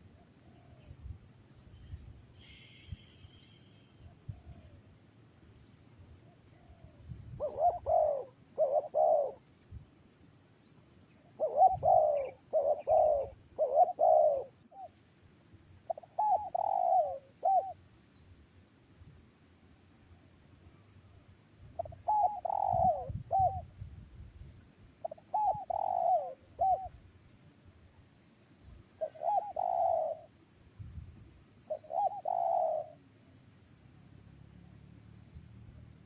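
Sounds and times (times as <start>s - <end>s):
dove cooing: 6.2s - 9.4s, 11.2s - 15.0s, 15.8s - 17.8s, 21.8s - 23.7s, 25.0s - 27.0s, 29.0s - 30.4s, 31.7s - 33.0s.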